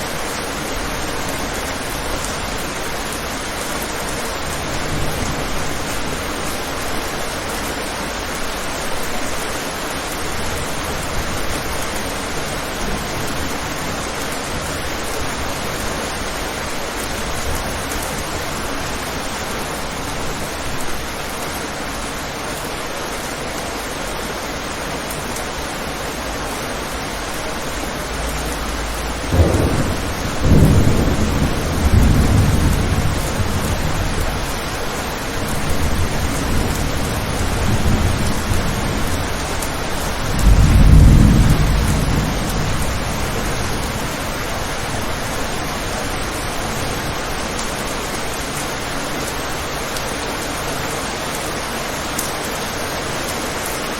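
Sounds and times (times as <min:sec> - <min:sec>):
heavy rain: 0:00.0 - 0:53.9
thunder clap and rumbles: 0:26.3 - 0:47.2.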